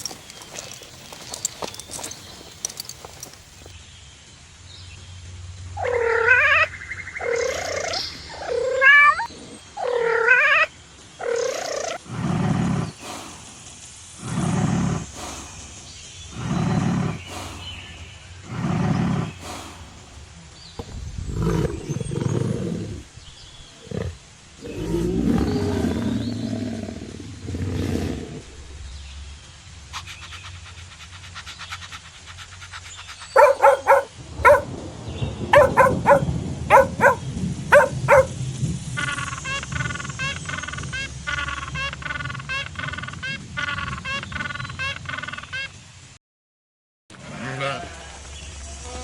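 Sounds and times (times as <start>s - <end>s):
lion roaring: 33.4s - 34.7s, 35.6s - 38.3s
dog barking: 33.4s - 34.8s, 35.5s - 38.4s.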